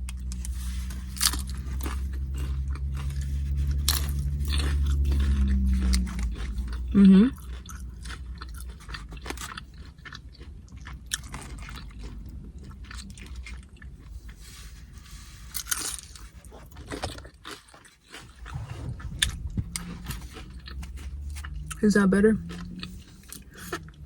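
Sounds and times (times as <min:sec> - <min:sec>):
crunching and chewing chips: 0:00.0 - 0:24.0.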